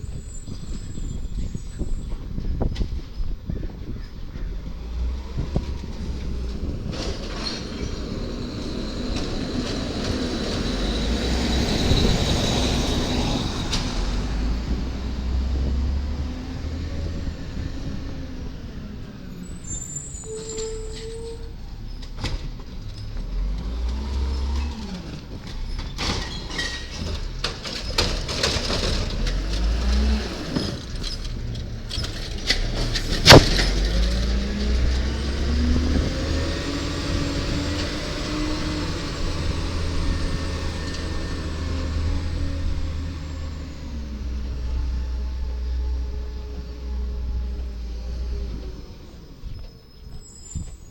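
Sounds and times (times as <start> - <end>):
garbage truck engine rumbling: 0.0 - 50.9
machinery whine: 5.7 - 21.9
sharp bang: 33.2 - 34.0.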